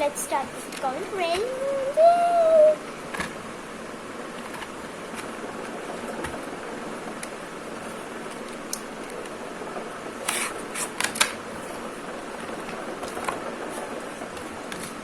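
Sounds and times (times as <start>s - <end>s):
paper rustling: 10.3s - 15.0s.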